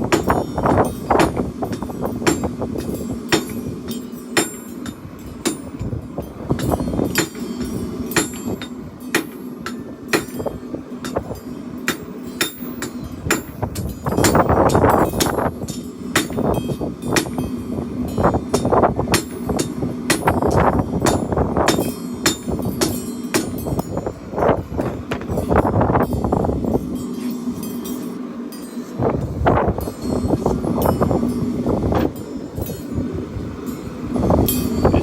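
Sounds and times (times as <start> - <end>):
hammer striking steel on anvil: 0.0 - 24.2
steady low hum: 0.0 - 35.0.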